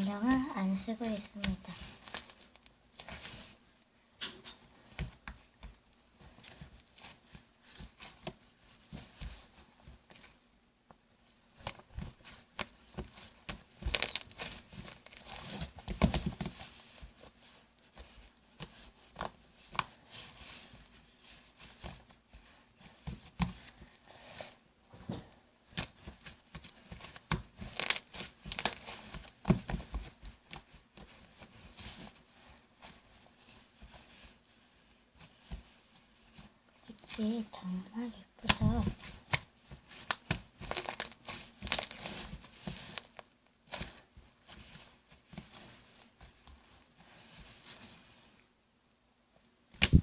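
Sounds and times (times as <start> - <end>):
slime squished by hand: 27.1 - 29.8.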